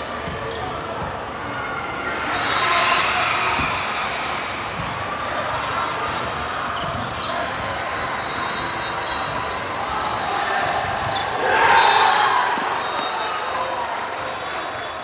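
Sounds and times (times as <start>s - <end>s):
volleyball contacts: 11.4s - 15.0s.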